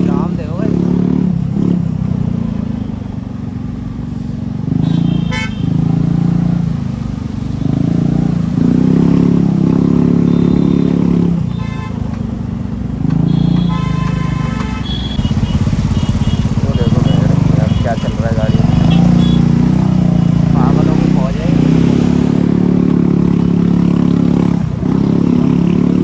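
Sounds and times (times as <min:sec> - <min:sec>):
car and motorcycle engines running: 0:00.0 - 0:26.0
vehicle horns honking: 0:04.7 - 0:06.0, 0:09.7 - 0:12.4, 0:13.1 - 0:21.8.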